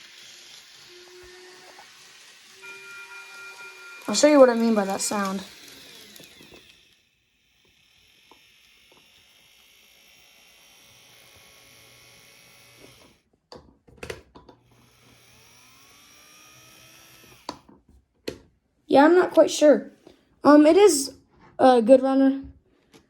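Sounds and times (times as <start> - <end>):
small electric motor whining: 0.0 - 13.2, 14.6 - 17.7.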